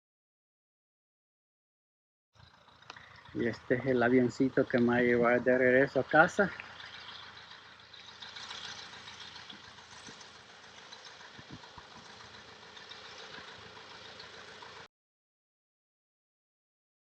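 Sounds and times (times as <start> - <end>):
distant light aircraft engine: 2.4 - 14.9.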